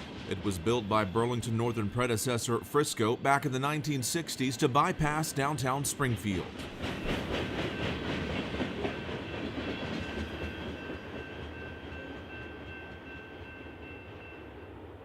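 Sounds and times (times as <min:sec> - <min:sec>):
freight train wheels clicking: 0:00.0 - 0:13.9.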